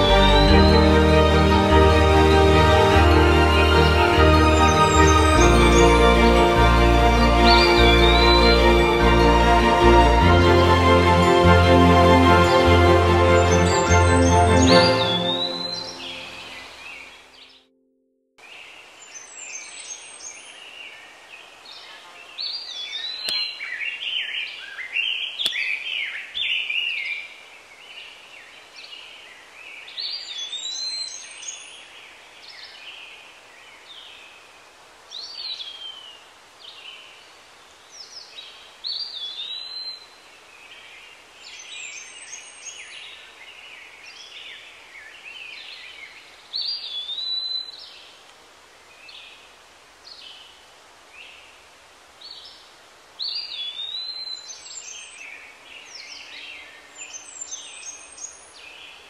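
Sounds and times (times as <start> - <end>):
songbirds singing: 0.0 - 11.4, 12.1 - 17.7, 18.4 - 59.0
faint background hiss: 18.4 - 59.0.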